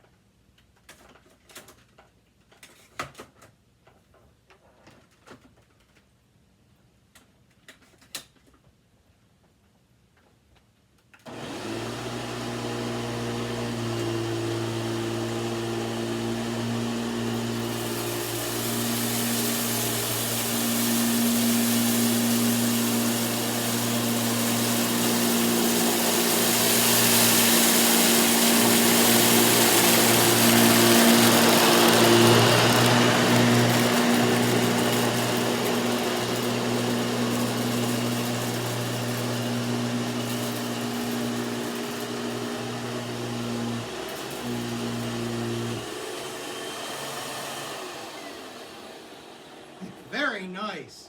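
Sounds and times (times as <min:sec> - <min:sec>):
vacuum cleaner running: 0:11.3 - 0:50.1
vacuum sucking up rice: 0:11.3 - 0:50.3.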